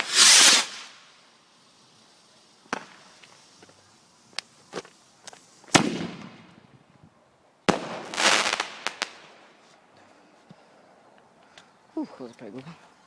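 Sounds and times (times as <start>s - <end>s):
fireworks bangs: 0.0s - 1.0s, 2.6s - 3.7s, 4.4s - 6.7s, 7.6s - 9.4s
fireworks crackling: 0.0s - 9.9s.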